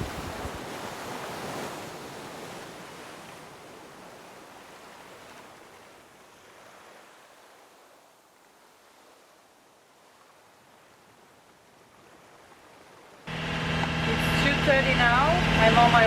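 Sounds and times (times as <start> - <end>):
sea water rushing along a boat: 0.0 - 16.0
wind: 0.0 - 16.0.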